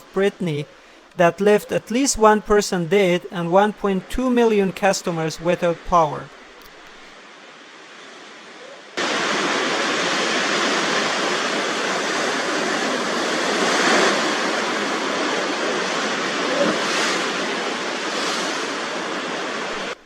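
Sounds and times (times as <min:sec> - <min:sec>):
surf: 0:00.0 - 0:20.0
storm wind: 0:06.3 - 0:20.0.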